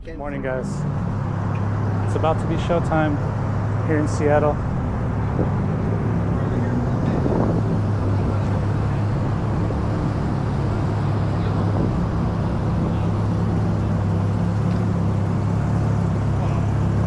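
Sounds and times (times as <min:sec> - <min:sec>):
motor vehicle droning: 0:00.0 - 0:17.0.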